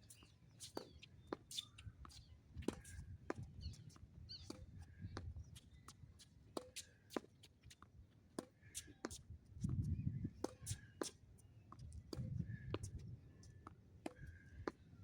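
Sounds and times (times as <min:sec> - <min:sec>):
wind buffeting microphone: 0:09.6 - 0:10.4, 0:11.9 - 0:13.2.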